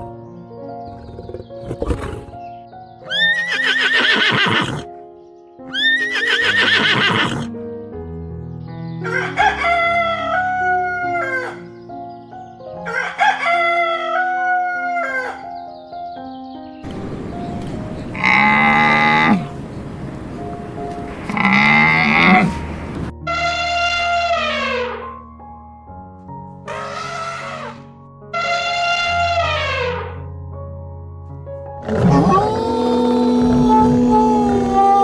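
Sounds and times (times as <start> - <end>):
background music: 0.0 - 35.0
horse whinnying: 0.8 - 2.5, 3.1 - 4.9, 5.7 - 7.5, 16.9 - 23.1, 31.8 - 35.0
rooster crowing: 9.0 - 11.7, 12.9 - 15.5, 16.9 - 23.1, 31.8 - 35.0.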